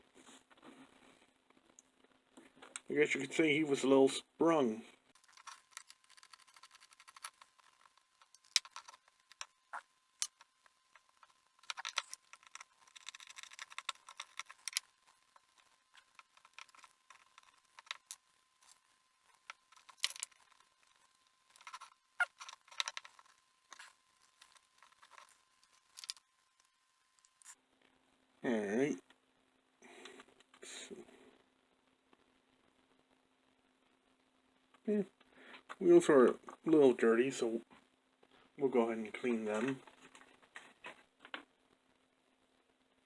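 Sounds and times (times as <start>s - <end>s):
small metal parts clicking and scraping: 5.2s - 27.6s.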